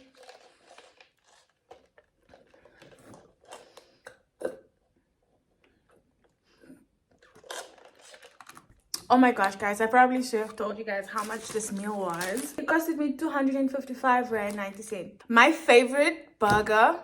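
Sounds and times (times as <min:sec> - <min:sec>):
close chewing and mouth sounds: 0:00.0 - 0:04.7, 0:05.5 - 0:09.1.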